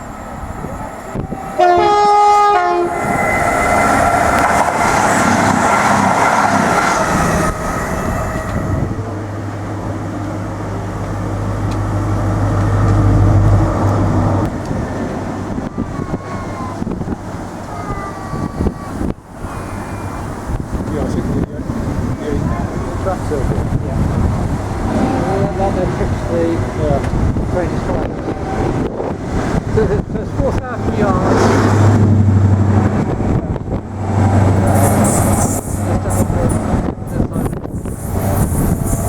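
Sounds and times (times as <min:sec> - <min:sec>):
train rumbling past: 0:00.0 - 0:39.0
train horn: 0:01.6 - 0:06.0, 0:24.9 - 0:25.6.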